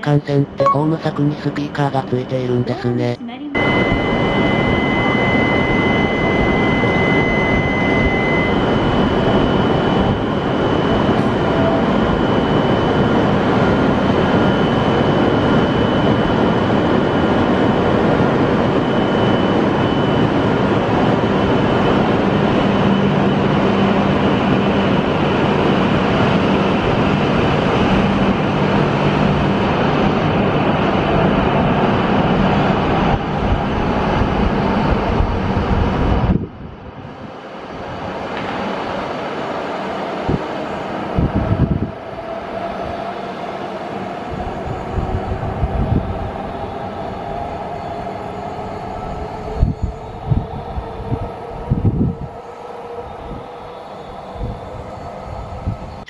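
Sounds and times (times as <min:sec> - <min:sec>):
low hum: 0:00.0 - 0:43.2
thin high whine: 0:00.0 - 0:56.0
train rushing: 0:00.0 - 0:56.0.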